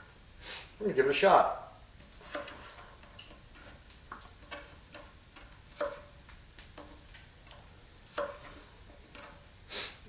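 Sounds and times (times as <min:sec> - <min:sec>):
kitchen utensils tapping and clicking: 0:02.3 - 0:09.4.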